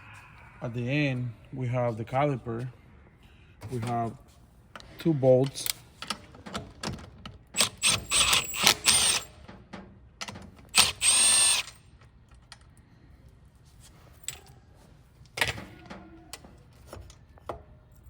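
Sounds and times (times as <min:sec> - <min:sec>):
power drill spinning: 0:07.6 - 0:09.4, 0:10.7 - 0:11.8.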